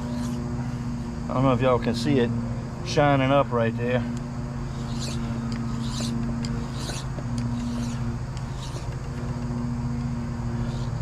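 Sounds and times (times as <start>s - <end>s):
hand file scraping steel: 0.0s - 0.8s, 4.7s - 9.3s, 10.5s - 11.0s
steady low hum: 0.0s - 11.0s.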